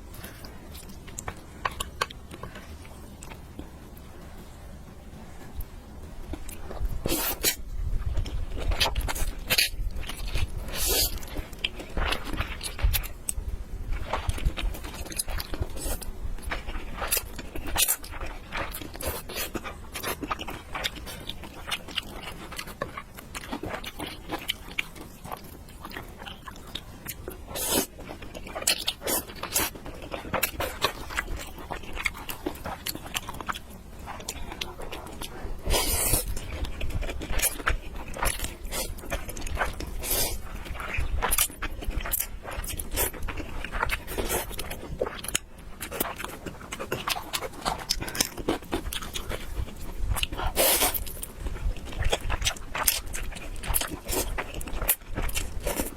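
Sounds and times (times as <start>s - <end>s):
person chewing crunchy noodles: 0.0s - 3.7s, 5.5s - 55.9s.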